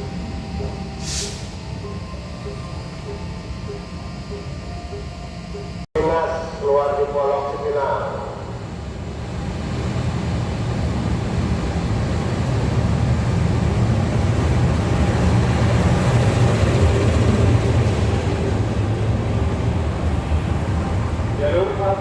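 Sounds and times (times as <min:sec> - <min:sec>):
train rumbling past: 0:05.5 - 0:22.0.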